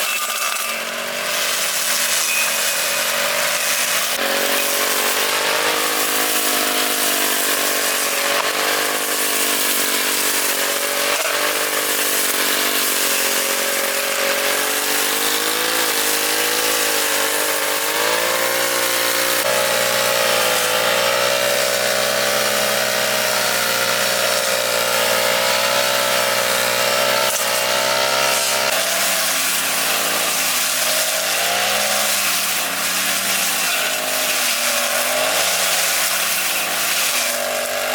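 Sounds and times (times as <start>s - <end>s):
lawn mower engine cutting grass: 0.0s - 37.9s.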